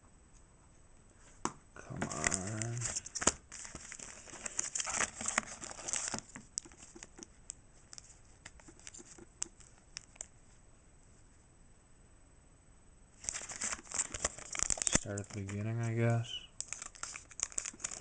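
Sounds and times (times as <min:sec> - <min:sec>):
foil wrapper crinkling: 0:02.1 - 0:07.3, 0:07.9 - 0:10.3, 0:13.2 - 0:18.0.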